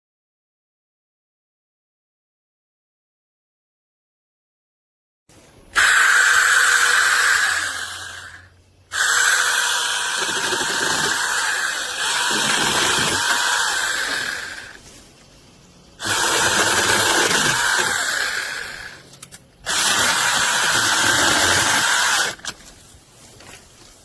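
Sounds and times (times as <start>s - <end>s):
mini chainsaw whining: 5.8s - 14.8s, 16.0s - 22.6s.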